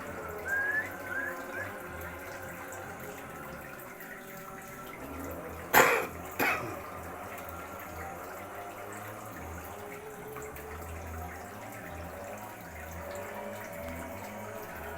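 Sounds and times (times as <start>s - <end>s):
water trickling: 0.0s - 14.9s
person coughing: 5.7s - 6.8s.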